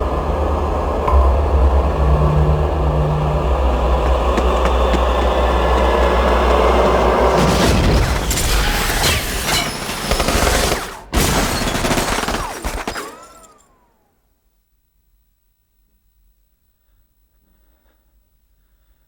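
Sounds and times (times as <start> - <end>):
falling tone: 0.0 - 9.0
sudden loud hit: 0.0 - 9.4
heavy gunfire: 3.6 - 13.5
booms and shattering: 4.1 - 13.7.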